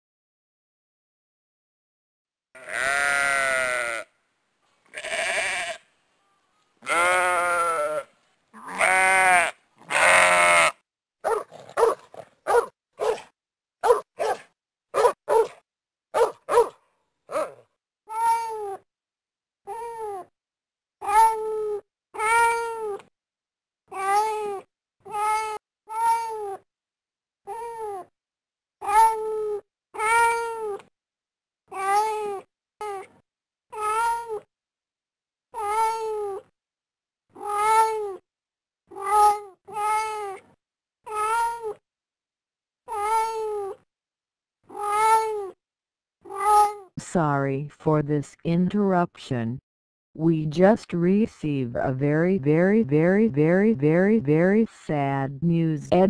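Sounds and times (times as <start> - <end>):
short animal cries: 5.0 - 5.8
cat meowing: 44.7 - 45.5.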